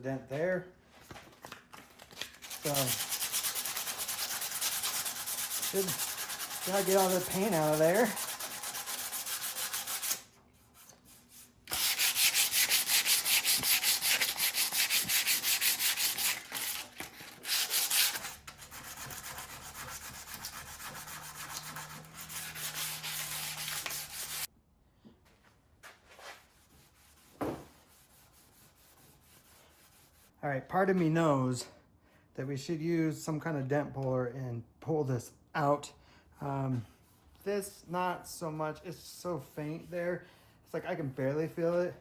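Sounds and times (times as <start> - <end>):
sandpaper rubbing on metal panel: 2.5 - 24.5.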